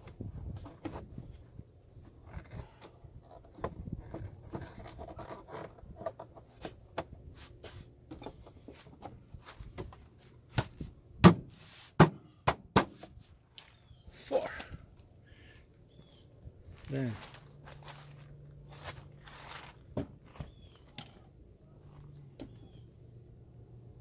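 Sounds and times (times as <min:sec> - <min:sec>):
plastic parts rubbing and scraping: 0:00.0 - 0:09.8.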